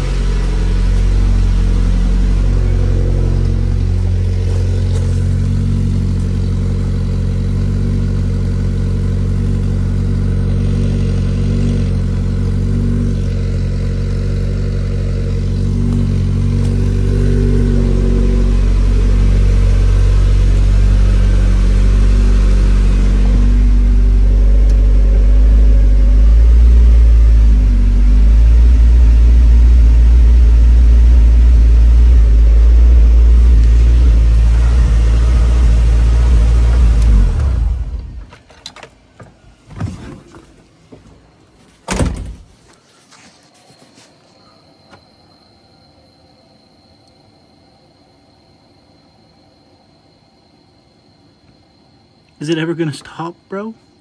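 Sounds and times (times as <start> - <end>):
car engine running: 0.0 - 38.5.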